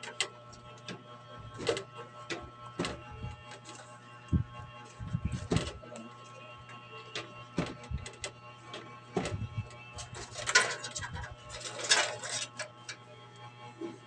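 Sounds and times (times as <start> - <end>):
scraping rattles: 7.1 - 12.9.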